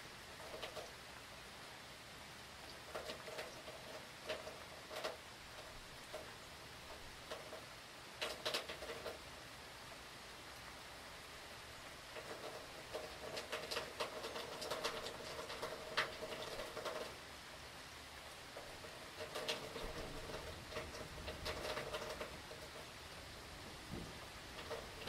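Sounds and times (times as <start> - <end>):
rain pattering in gusts: 0.0 - 25.0.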